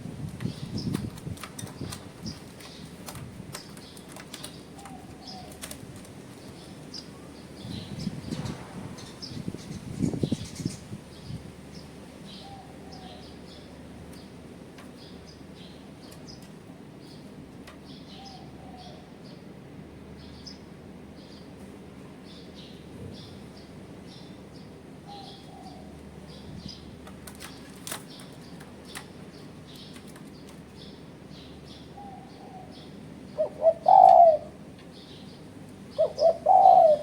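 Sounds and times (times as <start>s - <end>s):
small birds chirping: 0.4s - 19.5s, 20.1s - 37.0s
dove cooing: 32.0s - 34.7s, 35.9s - 37.0s.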